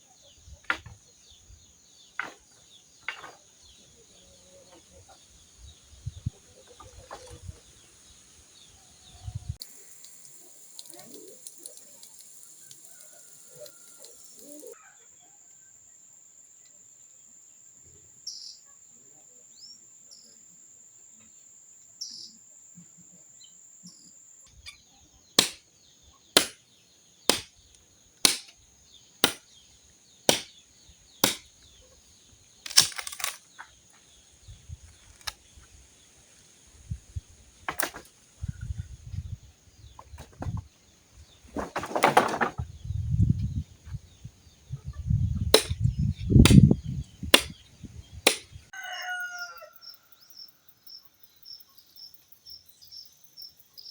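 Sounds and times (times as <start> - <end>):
sharp knocks: 25.4 - 25.6, 28.3 - 28.5, 29.2 - 29.4, 30.3 - 30.5, 31.2 - 31.5, 45.6 - 45.8, 47.4 - 47.6, 48.3 - 48.5.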